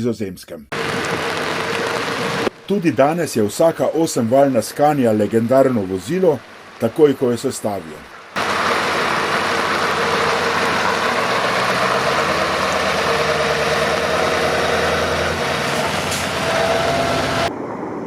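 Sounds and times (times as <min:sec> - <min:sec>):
diesel truck engine running: 0:00.7 - 0:05.3, 0:08.4 - 0:17.6.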